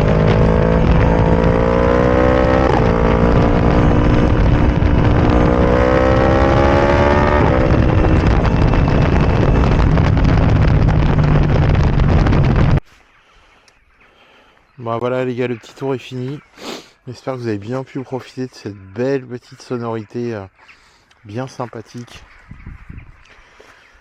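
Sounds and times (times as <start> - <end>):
motorcycle engine accelerating: 0.0 - 12.8.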